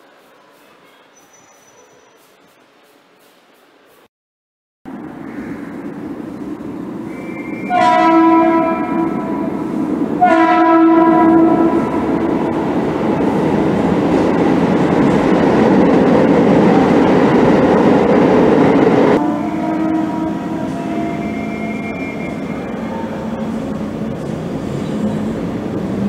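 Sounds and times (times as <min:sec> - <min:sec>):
train rumbling past: 0:04.9 - 0:26.0
train horn blasts: 0:07.1 - 0:12.5, 0:19.2 - 0:23.7.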